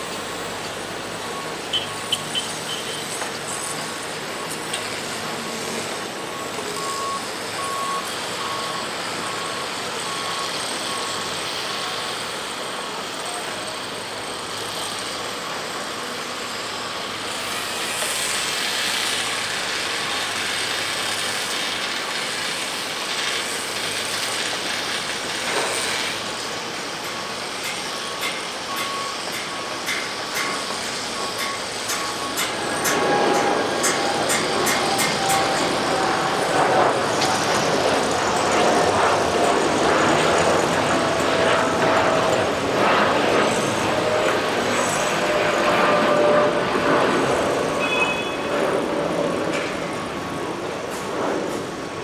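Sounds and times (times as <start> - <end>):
jet engines roaring: 0.0 - 52.0
faint repeating beep: 6.4 - 11.1, 47.8 - 48.6.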